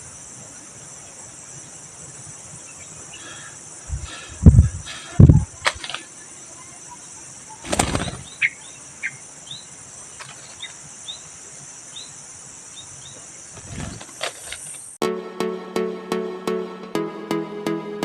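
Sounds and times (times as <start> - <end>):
insects droning: 0.0 - 15.0
bird chirping: 1.0 - 15.0
dull thumps or rustles: 3.9 - 6.0, 13.6 - 14.9.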